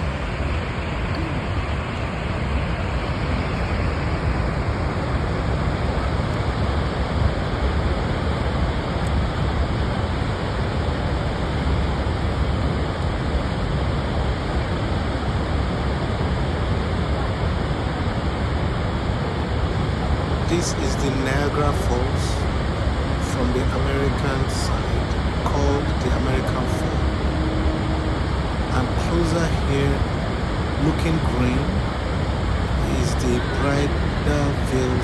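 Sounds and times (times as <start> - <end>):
waterfall roar: 17.0 - 35.0.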